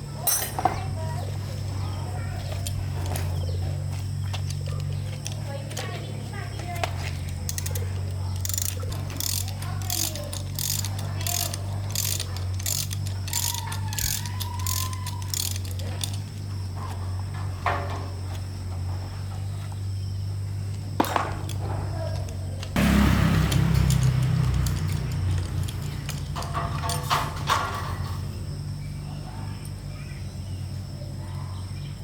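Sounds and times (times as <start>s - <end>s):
sharp clicks: 6.6s - 16.4s, 20.7s - 27.8s
hand tool strokes on metal: 8.4s - 17.0s.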